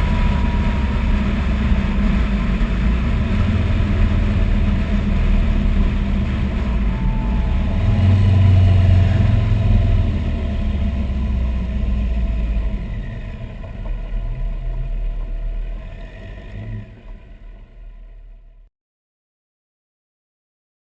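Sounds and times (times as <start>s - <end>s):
car engine revving: 0.0s - 18.6s.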